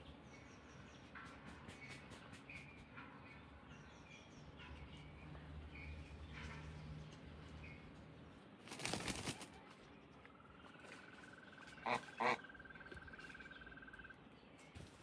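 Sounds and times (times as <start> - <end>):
bird wings flapping: 8.6 - 9.6.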